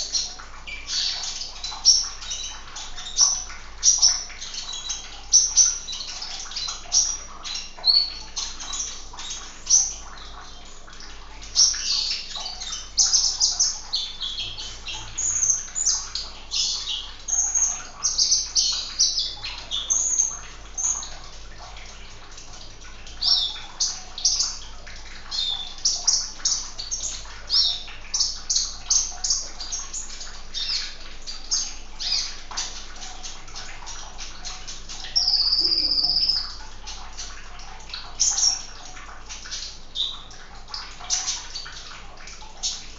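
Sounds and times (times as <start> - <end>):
sunbird chirping and twittering: 11.4 - 21.2, 25.3 - 37.3.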